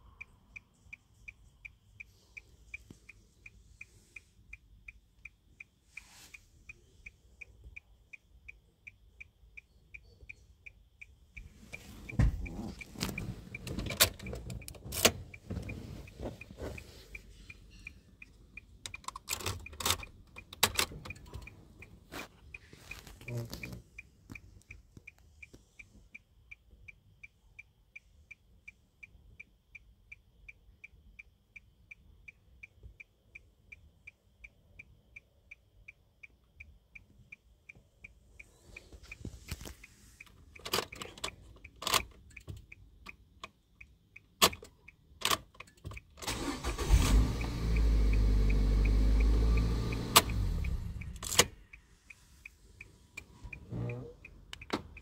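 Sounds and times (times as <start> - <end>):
car engine starting and running: 11.2 - 24.8, 44.4 - 55.0
scattered clicks: 17.1 - 25.6, 50.2 - 55.0.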